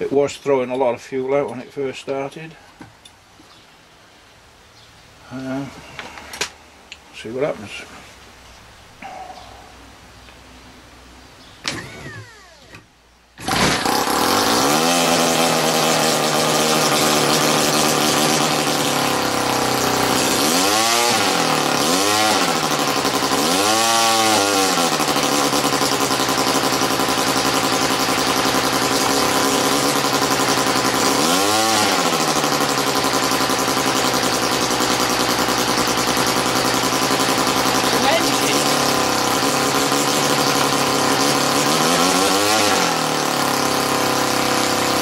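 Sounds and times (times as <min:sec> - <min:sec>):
model rotary engine running: 0:13.4 - 0:45.0.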